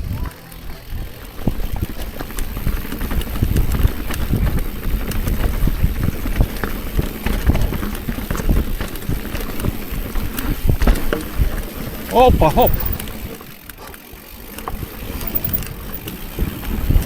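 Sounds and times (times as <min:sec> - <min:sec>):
wind rumble on microphone: 0:00.0 - 0:13.0, 0:14.7 - 0:17.0
bike rattling and knocking: 0:00.0 - 0:17.0.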